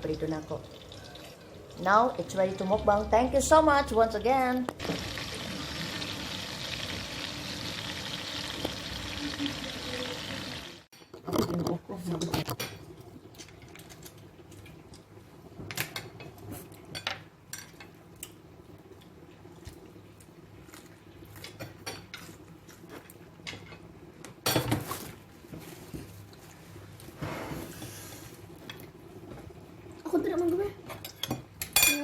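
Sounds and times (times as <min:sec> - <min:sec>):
cutlery and dishes clinking: 0:30.9 - 0:32.0.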